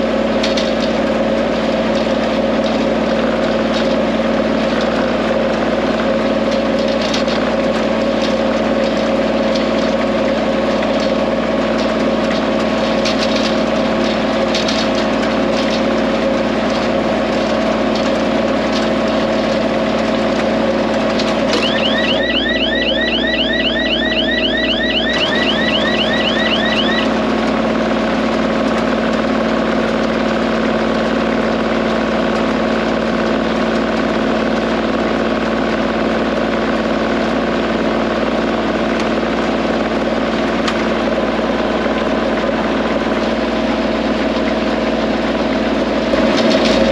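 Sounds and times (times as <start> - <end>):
high rapid chirps: 21.6 - 27.1.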